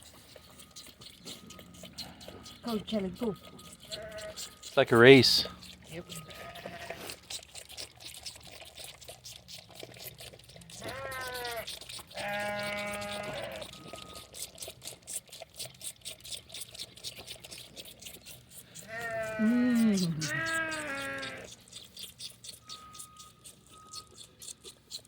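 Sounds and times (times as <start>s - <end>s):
lambs sucking from bottles: 0.0s - 25.0s
sheep bleating: 3.8s - 4.4s, 6.1s - 7.0s, 10.8s - 14.1s, 18.8s - 21.5s.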